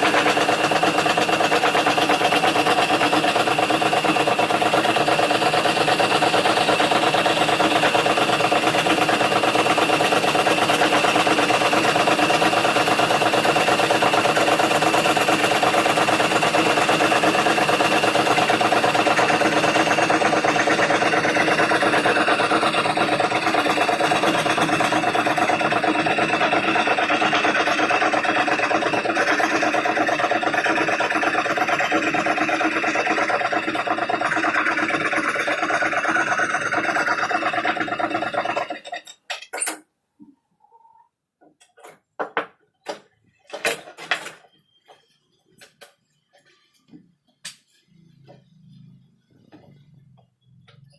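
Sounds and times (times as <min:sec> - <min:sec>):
scroll saw humming: 0:09.8 - 0:38.8.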